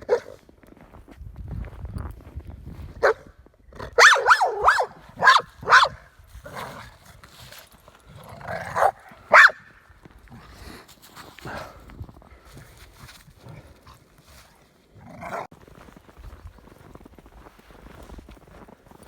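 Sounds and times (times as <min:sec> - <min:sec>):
dog barking sharply: 0:00.0 - 0:00.4, 0:04.0 - 0:06.0, 0:08.8 - 0:09.6.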